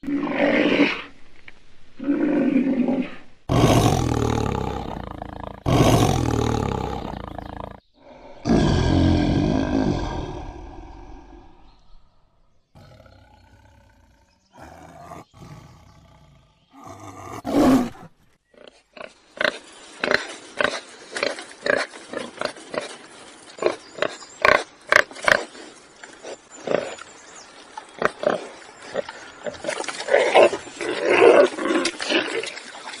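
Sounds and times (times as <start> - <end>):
big cat roaring: 2.0 - 11.6, 12.8 - 18.1.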